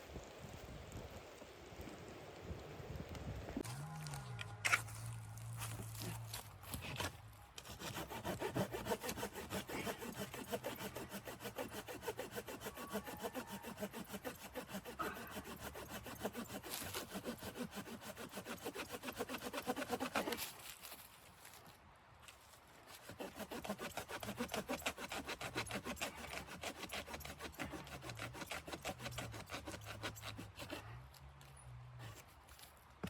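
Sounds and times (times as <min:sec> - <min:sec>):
hand saw cutting wood: 0:05.6 - 0:21.0, 0:22.9 - 0:31.0.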